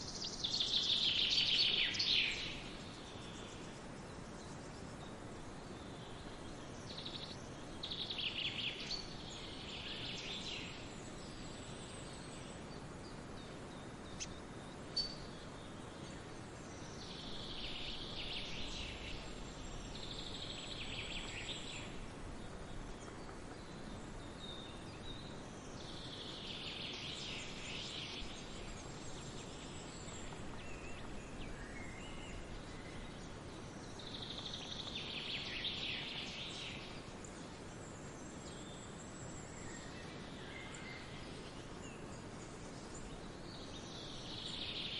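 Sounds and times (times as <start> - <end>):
forest ambience hiss: 0.0 - 44.9
songbirds singing: 0.0 - 44.9.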